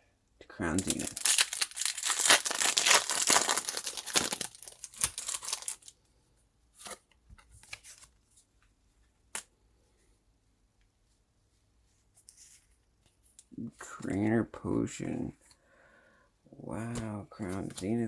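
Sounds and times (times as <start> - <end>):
foil wrapper tearing and crinkling: 0.8 - 5.9.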